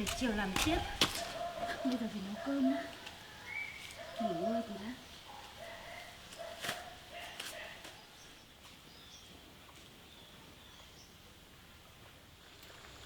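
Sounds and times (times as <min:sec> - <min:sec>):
faint bird chirps: 0:03.2 - 0:04.9.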